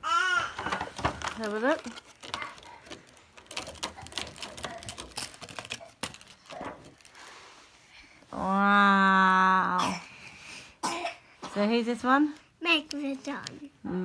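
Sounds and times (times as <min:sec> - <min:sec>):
plastic packaging crackling: 0:00.6 - 0:07.5.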